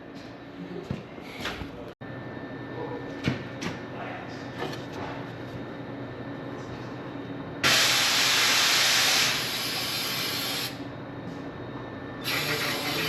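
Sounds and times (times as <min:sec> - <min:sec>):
compressed air hissing: 0:07.6 - 0:10.8, 0:12.2 - 0:13.0.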